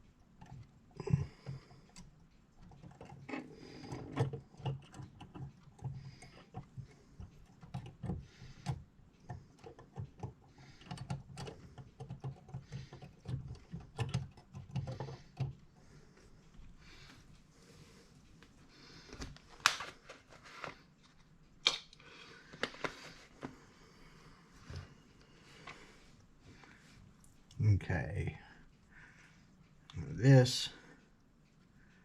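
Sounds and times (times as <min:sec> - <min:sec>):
metal clock parts clicking: 0:01.5 - 0:15.8.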